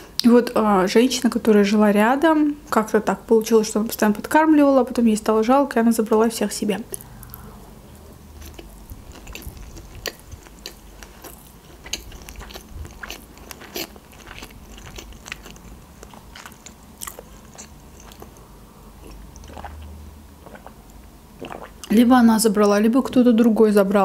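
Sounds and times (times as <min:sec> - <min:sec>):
person chewing close-up: 0:06.9 - 0:21.9
woman sipping water: 0:18.1 - 0:21.9.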